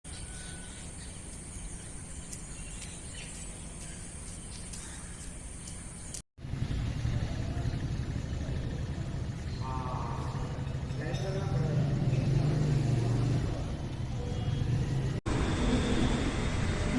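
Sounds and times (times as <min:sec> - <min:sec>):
city and vehicle rumble: 0:00.1 - 0:16.9
loud low rumble: 0:06.4 - 0:13.7
thin high-pitched whine: 0:09.4 - 0:11.9, 0:15.3 - 0:16.9.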